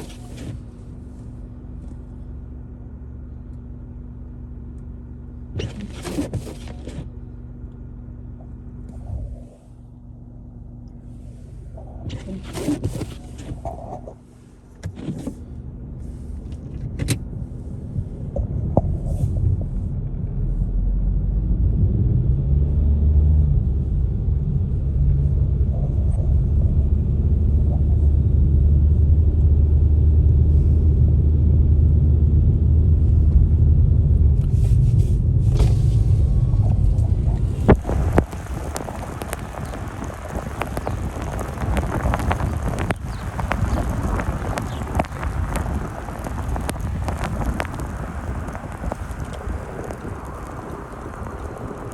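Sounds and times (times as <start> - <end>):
vehicle engine rumbling: 0.0 - 51.9
hissing noise: 34.5 - 51.9.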